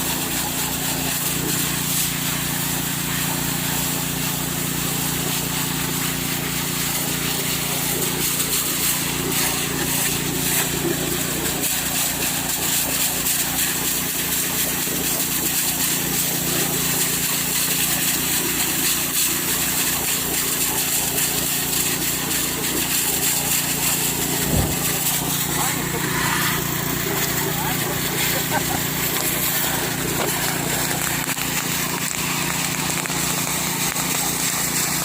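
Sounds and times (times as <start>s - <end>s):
small petrol engine running: 20.9s - 35.0s.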